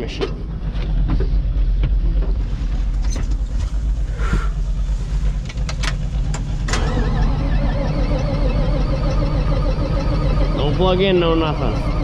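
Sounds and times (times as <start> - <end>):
tractor engine cranking whine: 2.2 - 12.0.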